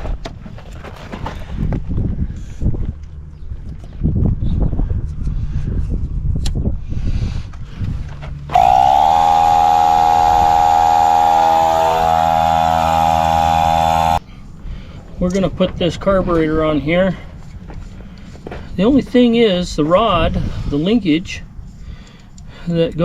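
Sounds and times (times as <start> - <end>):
low rumbling: 8.5 - 14.2
tyre inflator motor running: 8.5 - 14.2.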